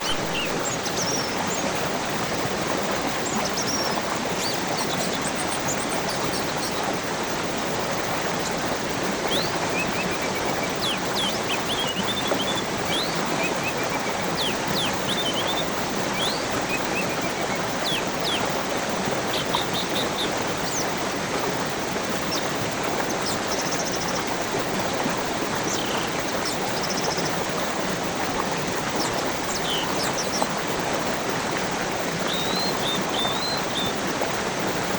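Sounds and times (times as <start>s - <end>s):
flowing water rushing: 0.0s - 34.9s
birds chirping and whistling: 9.3s - 18.5s, 32.3s - 33.9s.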